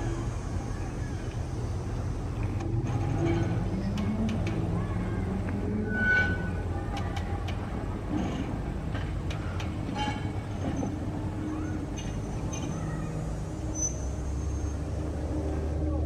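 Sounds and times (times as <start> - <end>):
train rumbling: 0.0 - 16.0
train clicks and knocks: 2.2 - 14.0.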